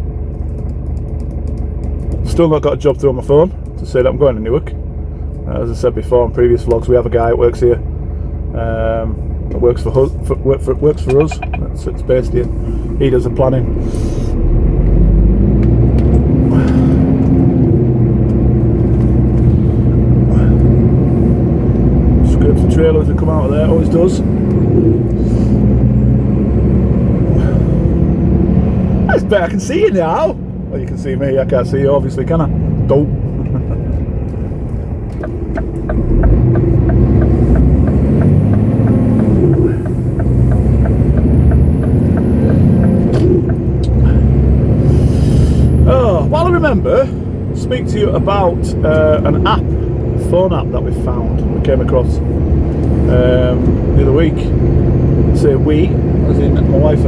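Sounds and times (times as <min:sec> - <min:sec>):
lorry diesel engine drone: 0:00.0 - 0:57.0
indicator ticking: 0:11.1 - 0:12.0, 0:35.2 - 0:44.0.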